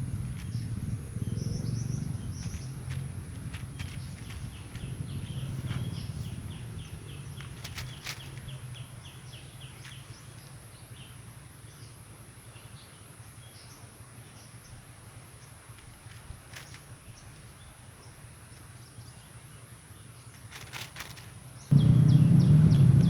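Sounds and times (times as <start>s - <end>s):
bird chirping: 0.0s - 14.8s, 21.6s - 23.0s
low rumble: 21.7s - 23.0s.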